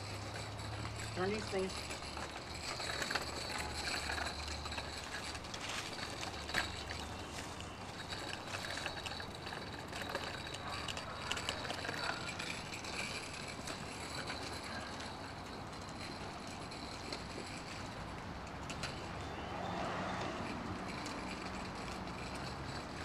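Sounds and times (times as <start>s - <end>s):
bicycle chain clicking and rattling: 0.0s - 23.0s.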